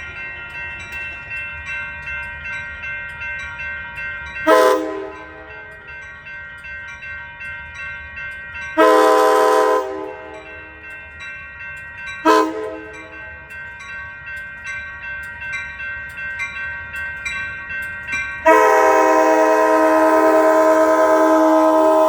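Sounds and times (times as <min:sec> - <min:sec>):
locomotive air horn: 0:04.5 - 0:05.6, 0:08.8 - 0:10.5, 0:12.2 - 0:13.1, 0:18.4 - 0:22.0
bell ringing: 0:10.0 - 0:19.1.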